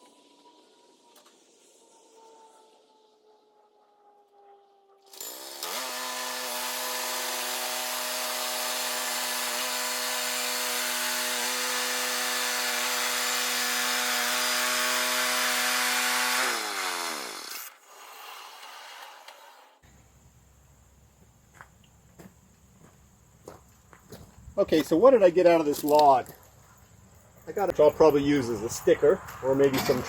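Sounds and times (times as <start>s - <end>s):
power saw cutting: 5.0s - 19.8s.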